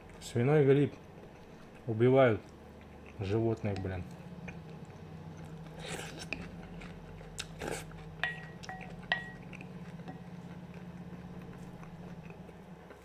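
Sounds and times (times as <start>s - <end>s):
steady low hum: 0.0s - 13.0s
chewing and slurping: 0.9s - 13.0s
spoon tapping glass bowl: 8.2s - 9.4s.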